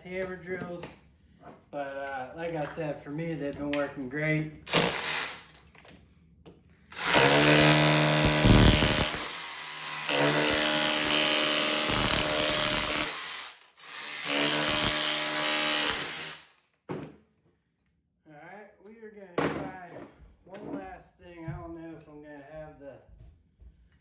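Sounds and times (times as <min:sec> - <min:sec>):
hammer drill chipping brick: 0:04.7 - 0:05.6, 0:07.0 - 0:16.5.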